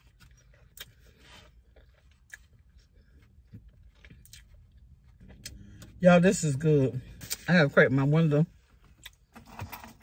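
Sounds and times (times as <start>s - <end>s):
person chewing food: 0.0s - 6.0s, 8.8s - 10.0s.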